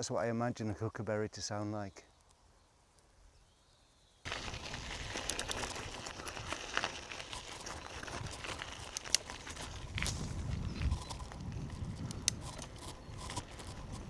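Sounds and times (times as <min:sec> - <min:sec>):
bicycle rolling over rough track: 0:04.3 - 0:14.0.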